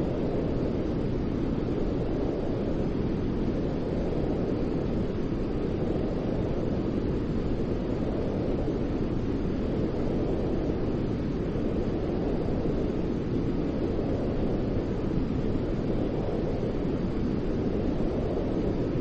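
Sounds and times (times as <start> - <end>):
low rumbling white noise: 0.0 - 19.0.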